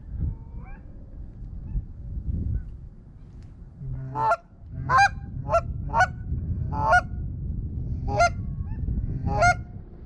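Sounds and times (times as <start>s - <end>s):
low background rumble: 0.0s - 10.0s
goose-like honking calls: 3.8s - 6.1s.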